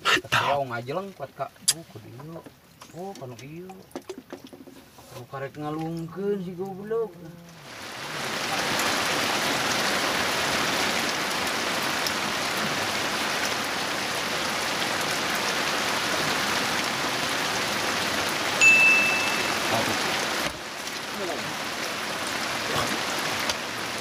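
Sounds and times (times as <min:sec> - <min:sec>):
heavy rain on water: 0:05.8 - 0:24.0
high beep: 0:18.6 - 0:19.6.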